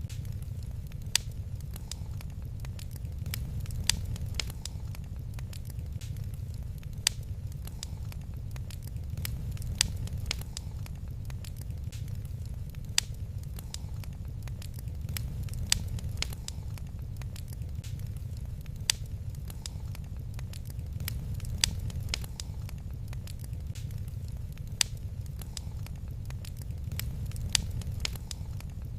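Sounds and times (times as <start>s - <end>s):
low rumble: 0.0s - 28.9s
wood fire crackling: 0.0s - 28.9s.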